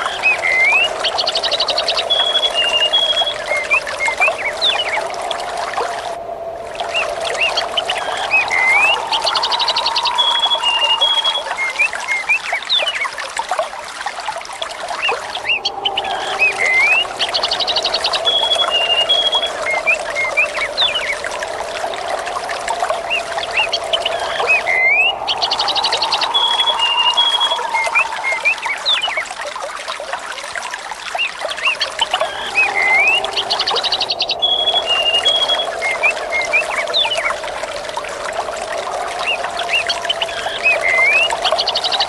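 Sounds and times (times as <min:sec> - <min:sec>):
water trickling: 0:00.0 - 0:42.0
small birds chirping: 0:22.9 - 0:29.4, 0:31.2 - 0:37.4.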